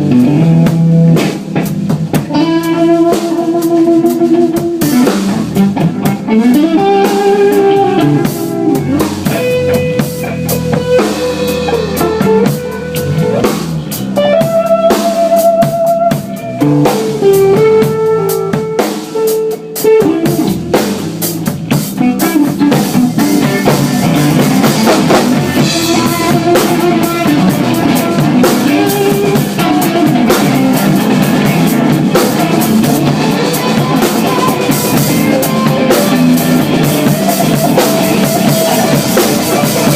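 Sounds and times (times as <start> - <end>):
drum kit beat: 0.0 - 39.9
guitar: 0.0 - 39.9
melodic lead line: 2.3 - 39.9.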